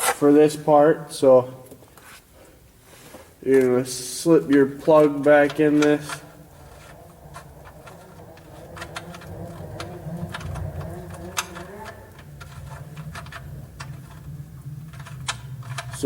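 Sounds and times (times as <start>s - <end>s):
steady low hum: 0.0s - 16.0s
hand tools clicking and tapping: 4.5s - 16.0s.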